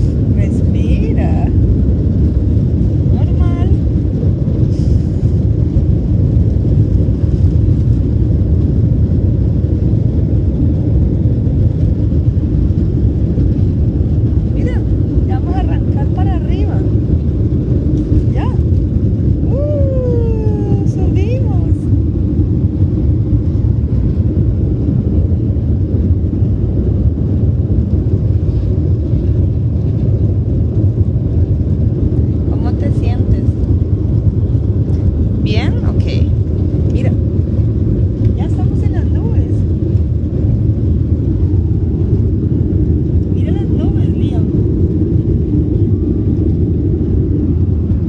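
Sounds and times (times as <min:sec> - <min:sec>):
airliner cabin engine rumble: 0:00.0 - 0:48.0.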